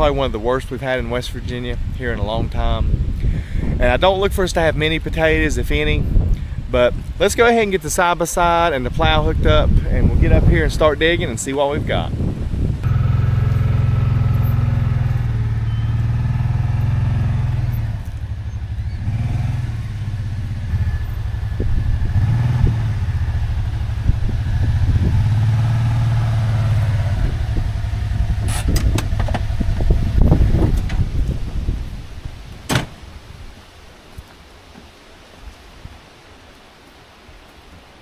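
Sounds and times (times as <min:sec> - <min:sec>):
utility vehicle engine humming: 0:11.8 - 0:32.0.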